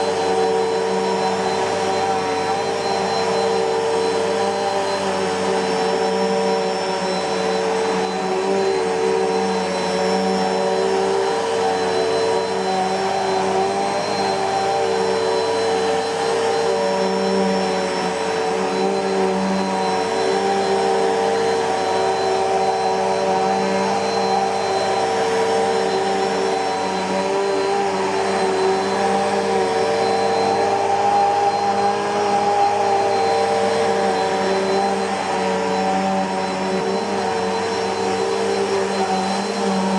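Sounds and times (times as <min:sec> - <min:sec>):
upright vacuum cleaner running: 0:00.0 - 0:39.9.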